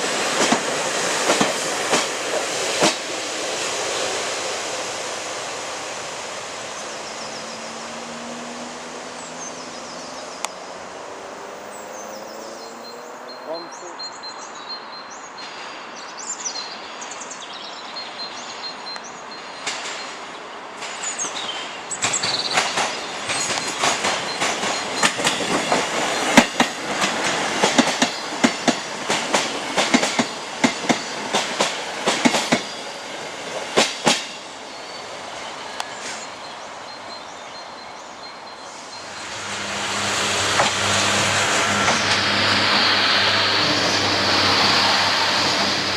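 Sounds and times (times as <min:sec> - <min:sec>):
train rumble: 0:00.0 - 0:14.0, 0:19.4 - 0:37.8, 0:38.5 - 0:45.9
train wheels clacking over joints: 0:00.3 - 0:03.1, 0:22.0 - 0:32.8, 0:40.4 - 0:45.9.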